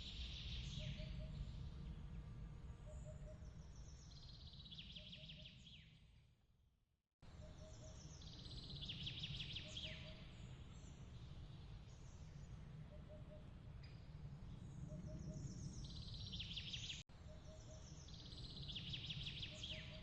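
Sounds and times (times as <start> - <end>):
steady low rumble: 0.3 - 4.0.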